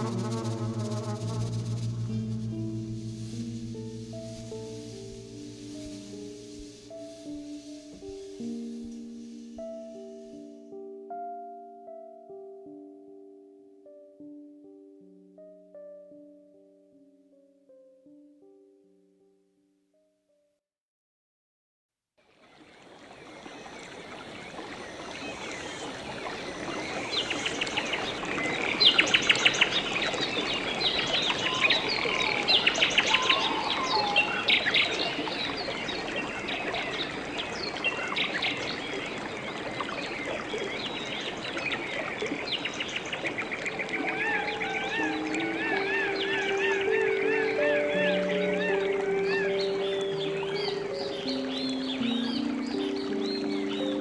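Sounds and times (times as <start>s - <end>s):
steady background wash: 0.0s - 10.7s
birds chirping and trilling: 22.6s - 54.0s.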